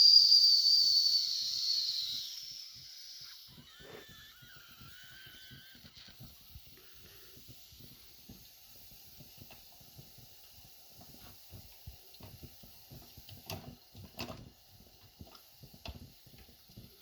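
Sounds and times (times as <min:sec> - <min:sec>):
faint wavering whistle tone: 0:00.0 - 0:04.0
faint steam hiss: 0:00.0 - 0:17.0.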